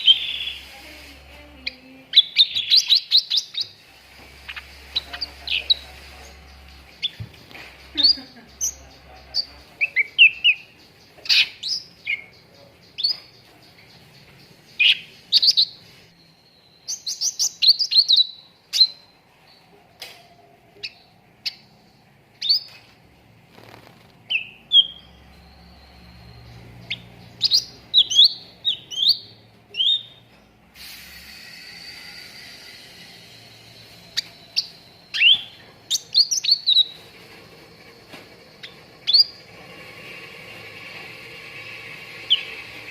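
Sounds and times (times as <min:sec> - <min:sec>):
songbird chirping and whistling: 0:00.0 - 0:19.6, 0:24.3 - 0:30.3, 0:31.3 - 0:37.0, 0:38.1 - 0:39.5
hissing rasp: 0:30.8 - 0:34.3, 0:37.0 - 0:42.9.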